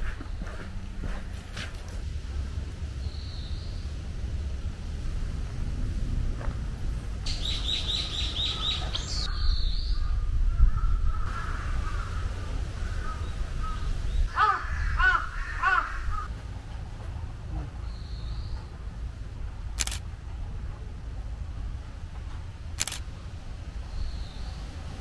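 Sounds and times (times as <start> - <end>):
steady low rumble: 0.0 - 25.0
wild birds calling: 7.3 - 16.3.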